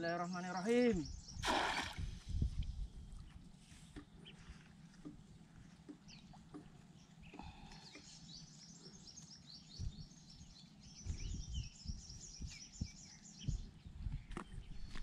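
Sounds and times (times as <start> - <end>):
dull low thumps: 0.8 - 3.4, 9.7 - 15.0
small bird chirping: 5.9 - 15.0.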